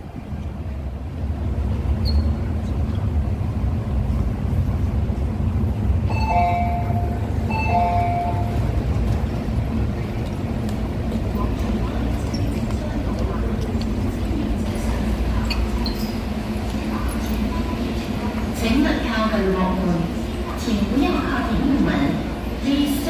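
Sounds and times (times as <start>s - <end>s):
train equipment low rumble: 0.0s - 23.0s
train doors opening: 6.0s - 18.6s.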